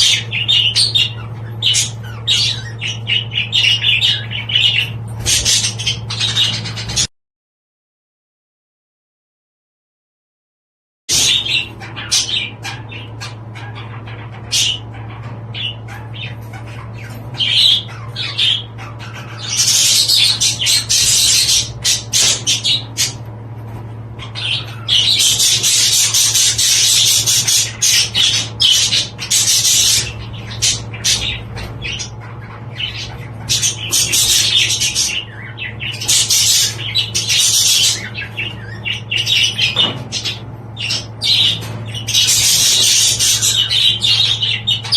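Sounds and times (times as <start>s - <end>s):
budgerigars chattering and squawking: 0.0s - 7.1s, 11.1s - 44.9s
steady low hum: 0.0s - 7.1s, 11.1s - 44.9s.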